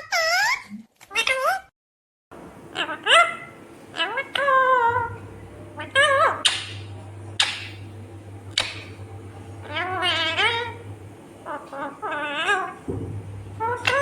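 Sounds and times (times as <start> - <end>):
parrot squawking and warbling: 0.0 - 1.7, 2.7 - 7.8, 8.5 - 9.0, 9.6 - 10.8, 11.4 - 12.9, 13.5 - 14.0
low steady hum: 2.3 - 14.0.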